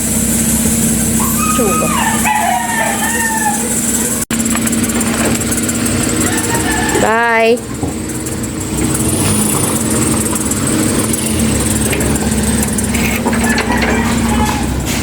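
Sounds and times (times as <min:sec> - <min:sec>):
road noise: 0:00.0 - 0:15.0
small engine running steadily: 0:00.0 - 0:15.0.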